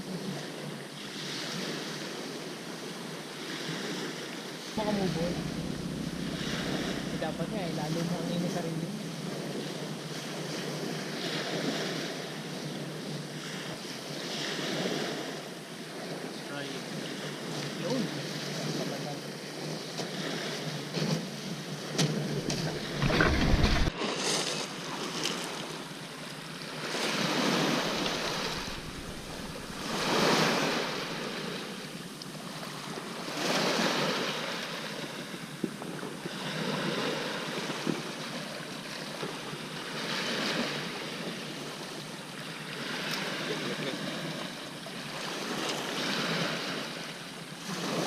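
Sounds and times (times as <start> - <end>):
small waves washing: 0.0 - 48.0
wind buffeting microphone: 4.8 - 13.4, 22.2 - 23.9, 27.2 - 31.6.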